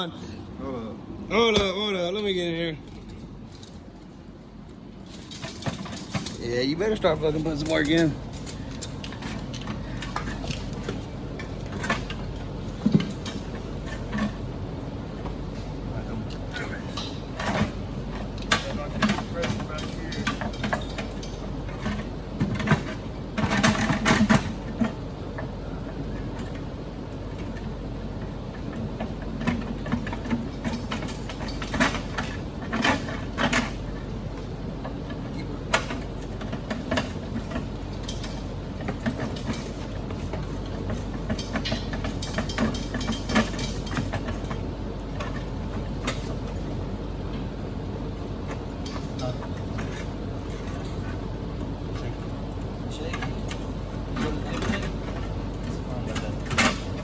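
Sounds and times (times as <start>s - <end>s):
steady low hum: 0.0s - 57.0s
metallic clanks of tools: 5.1s - 6.5s, 16.3s - 25.0s, 35.7s - 46.6s, 48.8s - 51.1s, 53.1s - 57.0s.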